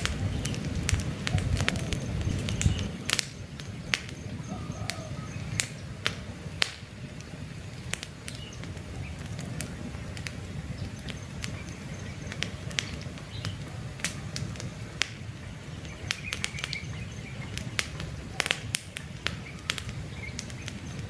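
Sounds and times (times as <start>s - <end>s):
campfire crackling: 0.0s - 21.0s
faint bird chirps: 1.3s - 5.7s, 19.3s - 21.0s.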